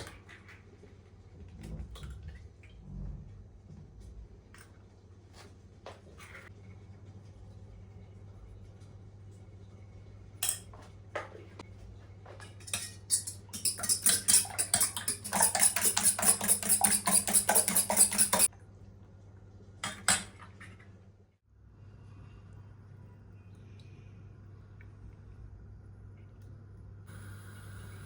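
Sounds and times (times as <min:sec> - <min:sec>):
kitchenware clinking: 0:10.4 - 0:10.7, 0:12.4 - 0:18.5
metal utensil beating in a bowl: 0:12.6 - 0:18.5.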